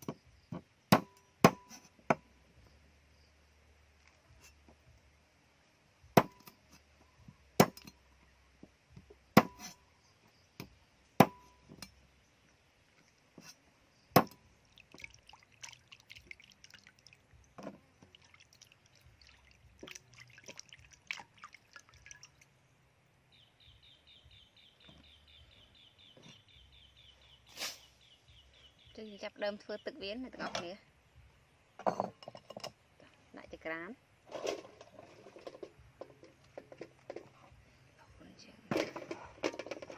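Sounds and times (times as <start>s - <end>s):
chopping on wooden board: 0.9s - 2.2s, 6.2s - 6.4s, 9.4s - 9.7s, 14.2s - 14.4s.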